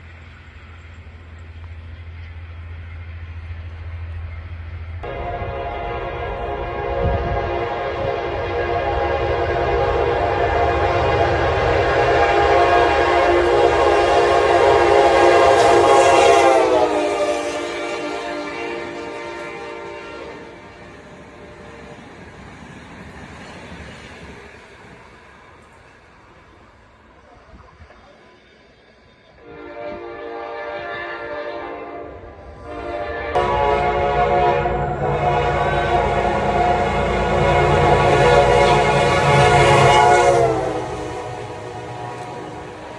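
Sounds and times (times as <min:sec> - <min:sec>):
train rumbling: 0:00.0 - 0:42.9
locomotive air horn blast: 0:05.0 - 0:20.9, 0:29.4 - 0:42.9.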